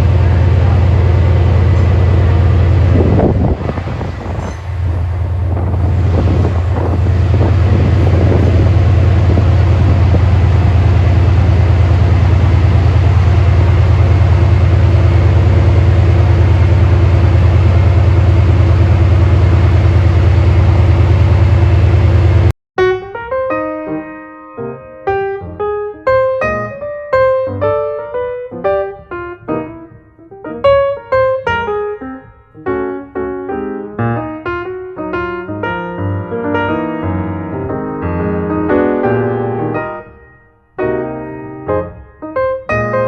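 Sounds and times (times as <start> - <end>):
train low drone: 0.0 - 22.5
uneven rumbling: 0.0 - 22.5.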